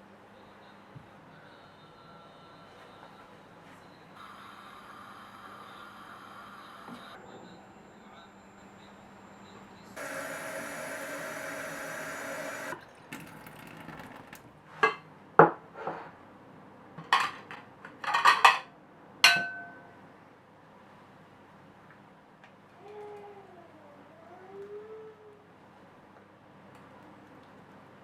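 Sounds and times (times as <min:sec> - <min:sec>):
kitchen tap running: 0:10.0 - 0:14.5
dishes and utensils clinking: 0:17.0 - 0:18.7.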